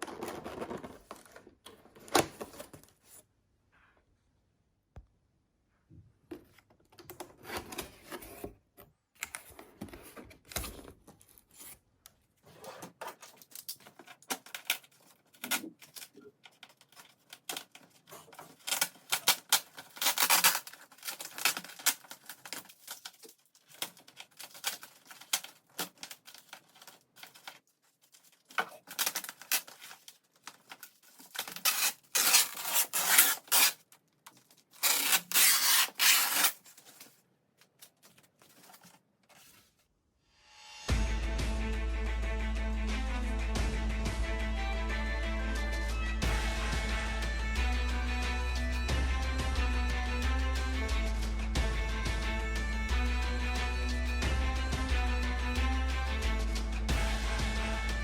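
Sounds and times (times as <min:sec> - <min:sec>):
packaging tearing and rubbing: 0:12.6 - 0:37.2.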